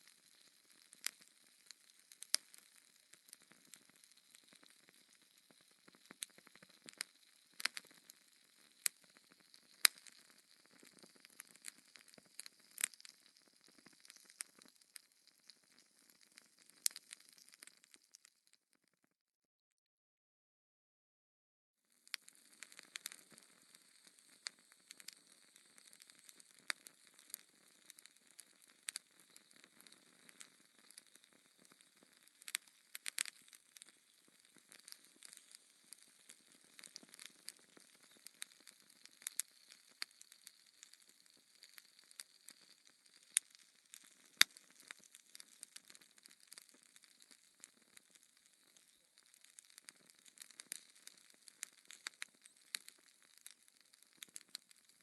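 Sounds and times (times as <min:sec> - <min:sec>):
wood fire crackling and popping: 0:00.0 - 0:18.6, 0:21.9 - 0:55.0.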